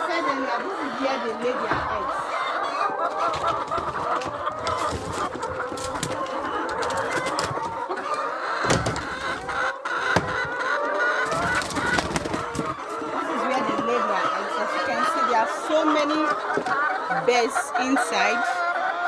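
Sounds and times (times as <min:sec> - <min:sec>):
hens clucking: 0:00.0 - 0:19.0
short knocks: 0:10.1 - 0:10.6.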